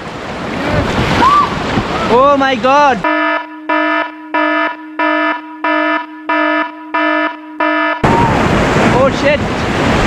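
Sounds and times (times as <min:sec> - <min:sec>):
rushing river water: 0:00.0 - 0:03.1, 0:08.0 - 0:10.0
electronic alarm beeping: 0:03.0 - 0:08.0.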